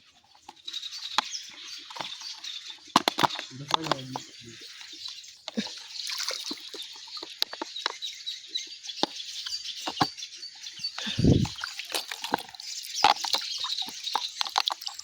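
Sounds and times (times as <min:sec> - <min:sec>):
birds chirping: 0:00.0 - 0:15.0
water dripping and splashing: 0:05.5 - 0:08.0, 0:11.0 - 0:15.0.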